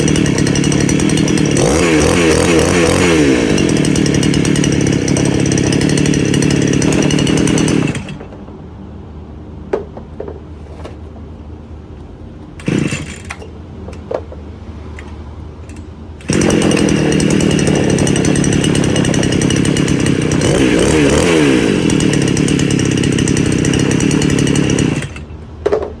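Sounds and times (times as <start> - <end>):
small engine revving: 0.0 - 8.3, 12.6 - 13.5, 14.9 - 25.3.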